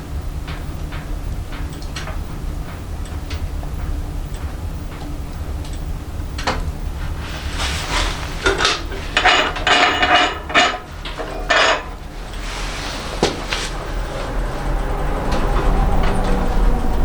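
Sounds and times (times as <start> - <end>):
metal clanks and scrapes: 7.0 - 14.0.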